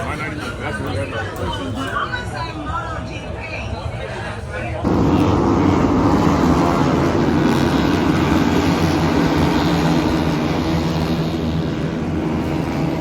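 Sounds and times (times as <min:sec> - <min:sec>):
engine running steadily: 0:04.8 - 0:13.0.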